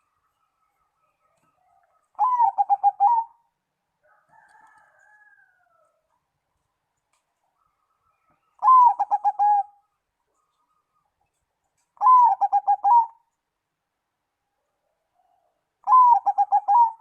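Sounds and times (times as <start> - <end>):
dove cooing: 1.6 - 3.4, 8.6 - 9.8, 12.0 - 13.3, 15.8 - 17.0.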